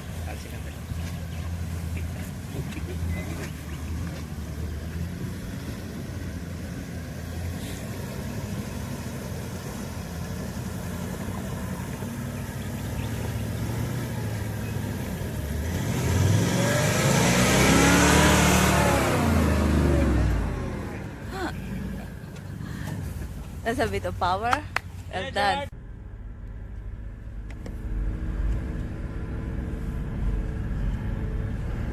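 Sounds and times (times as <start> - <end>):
vehicle engine revving: 0.0 - 23.6.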